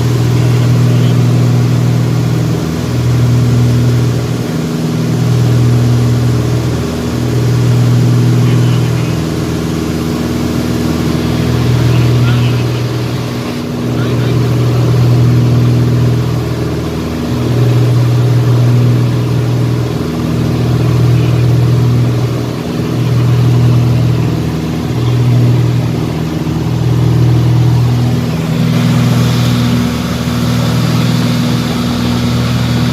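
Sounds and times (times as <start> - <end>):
engine drone: 0.0 - 32.9.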